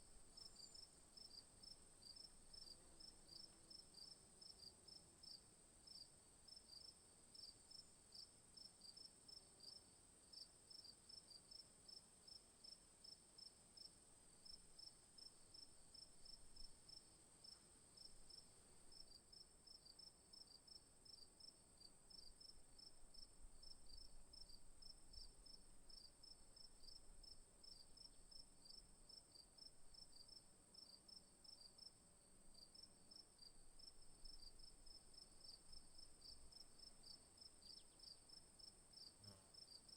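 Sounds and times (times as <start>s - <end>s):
insects chirping: 32.6s - 39.9s.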